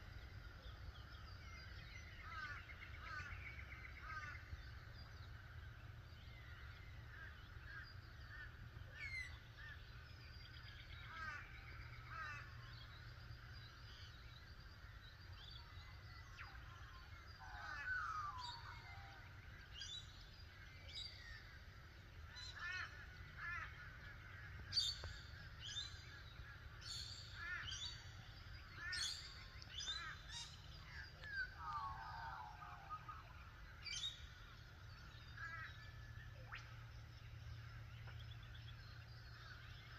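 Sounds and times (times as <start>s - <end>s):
steady low rumble: 29.3s - 39.9s.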